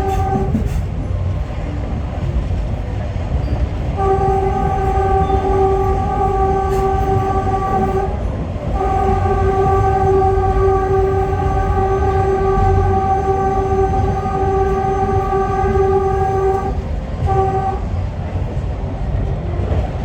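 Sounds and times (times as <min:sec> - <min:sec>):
train horn blasts: 0:00.0 - 0:00.9, 0:04.0 - 0:18.2
moving train rumble: 0:00.0 - 0:20.0.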